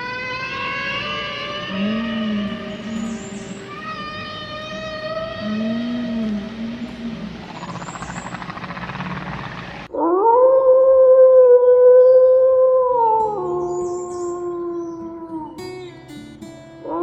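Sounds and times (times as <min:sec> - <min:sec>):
dog or wolf howling: 0:00.0 - 0:07.9, 0:09.9 - 0:15.9
even noise: 0:00.0 - 0:12.7.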